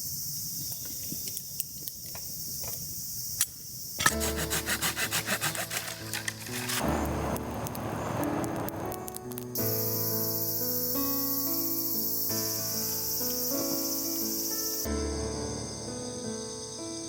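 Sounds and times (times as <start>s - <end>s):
insects trilling: 0.0s - 7.2s, 7.9s - 17.0s
hand saw cutting wood: 4.0s - 6.9s
music: 4.0s - 17.0s.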